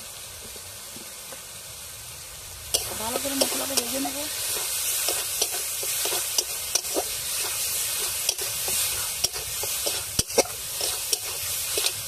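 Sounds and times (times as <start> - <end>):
spice paste sizzling in oil: 0.0 - 12.0
spatula scraping and knocking pan: 2.8 - 12.0.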